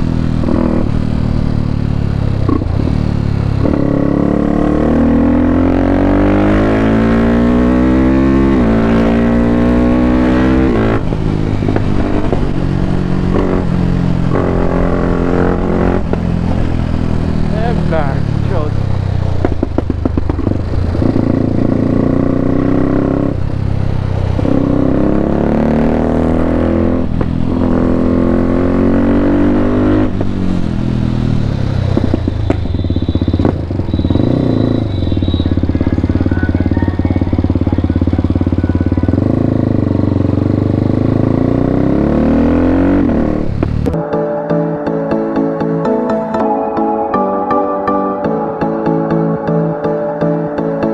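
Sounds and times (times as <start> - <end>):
motorcycle engine revving: 0.0 - 44.0
music: 43.9 - 50.9.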